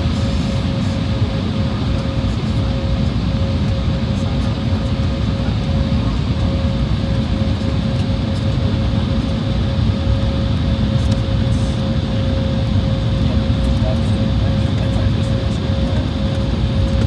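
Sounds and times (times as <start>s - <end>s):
mid-pitched whine: 0.0s - 4.4s
jet engine cabin rumble: 0.0s - 17.0s.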